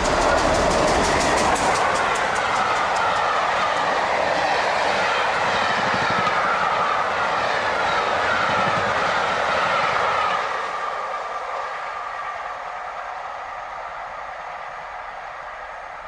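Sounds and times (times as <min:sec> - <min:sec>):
falling whine: 0:00.0 - 0:04.2
train wheels rushing on rail: 0:00.0 - 0:16.0.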